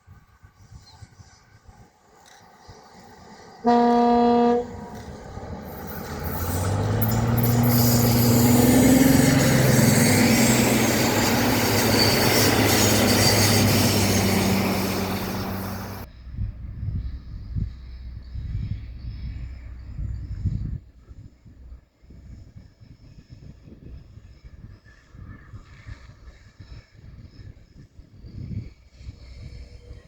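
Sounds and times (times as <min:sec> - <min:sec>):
train passing with engine drone: 0:00.1 - 0:22.4, 0:24.3 - 0:30.0
train horn blast: 0:03.6 - 0:05.1, 0:07.2 - 0:16.0.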